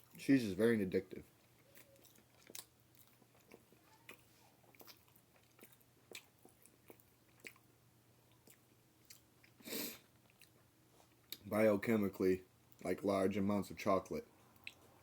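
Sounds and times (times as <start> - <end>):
person chewing food: 1.2 - 11.4, 14.4 - 15.0.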